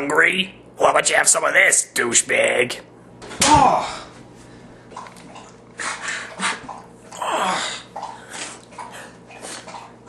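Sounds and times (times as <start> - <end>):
man groaning: 3.4 - 4.2, 7.2 - 7.9
man gasping and spluttering: 3.6 - 10.0.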